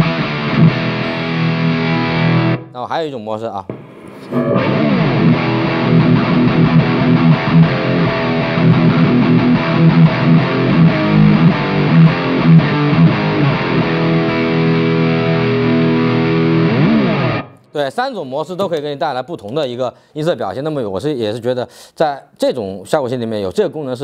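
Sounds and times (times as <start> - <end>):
distorted electric guitar: 0.0 - 2.7, 3.7 - 17.7.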